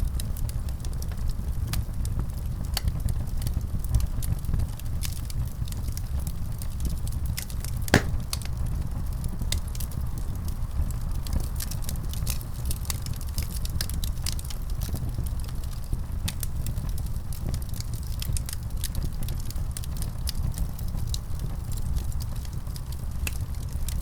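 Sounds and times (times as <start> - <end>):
wood fire crackling: 7.2 - 8.5
sharp pops from fire: 7.9 - 8.5.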